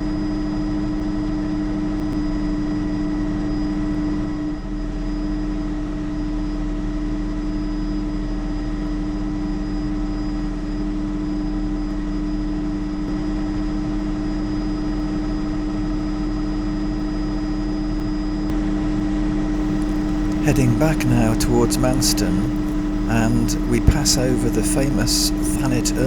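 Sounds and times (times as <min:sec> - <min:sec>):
helicopter engine and rotors: 0:19.6 - 0:26.0.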